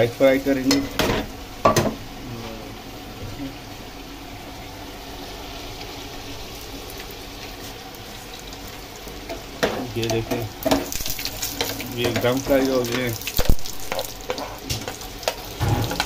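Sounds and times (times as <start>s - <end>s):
frying sizzle in oil: 0.0s - 16.0s.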